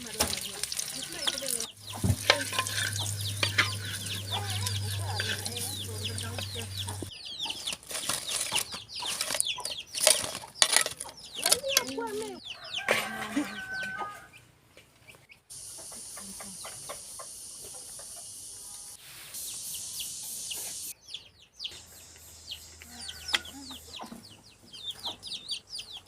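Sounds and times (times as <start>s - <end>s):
chickens clucking: 0.0s - 18.4s, 20.0s - 26.0s
chicks peeping: 0.3s - 18.4s, 19.5s - 26.0s
steady high hiss: 15.5s - 21.0s.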